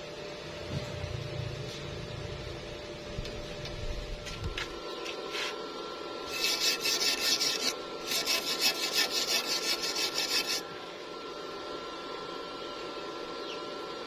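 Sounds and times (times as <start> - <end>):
hand tool scraping metal: 6.3 - 10.6.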